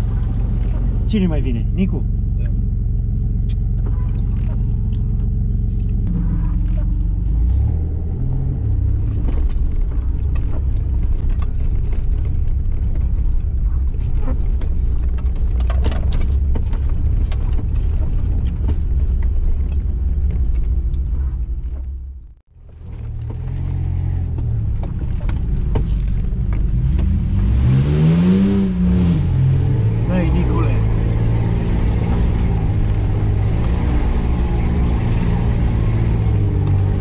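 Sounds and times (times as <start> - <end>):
off-road vehicle engine running: 0.0 - 37.0
clicks and knocks of bumping vehicle: 8.9 - 27.2.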